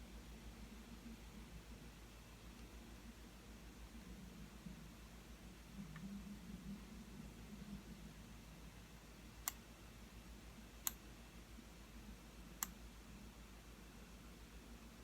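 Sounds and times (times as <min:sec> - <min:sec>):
faint low hum: 0:00.0 - 0:15.0
computer mouse clicks: 0:10.8 - 0:11.0, 0:12.6 - 0:12.8.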